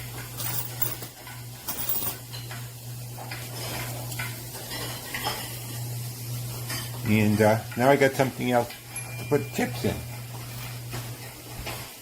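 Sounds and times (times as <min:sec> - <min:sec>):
coins clinking and jingling: 0:00.2 - 0:02.2.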